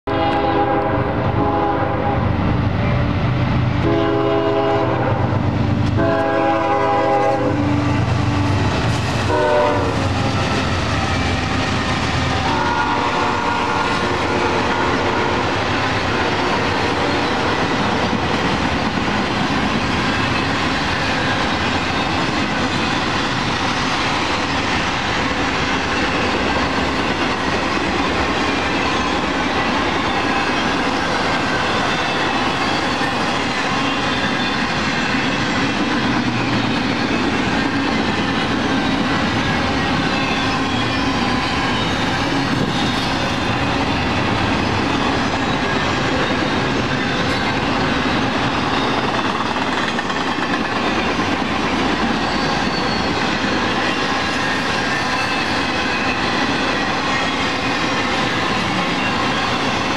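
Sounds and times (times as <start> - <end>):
locomotive air horn blasts: 0.1 - 2.2, 3.8 - 5.4, 6.0 - 8.6, 9.2 - 10.3, 12.4 - 17.7
train wheels clattering on rail: 3.7 - 59.9.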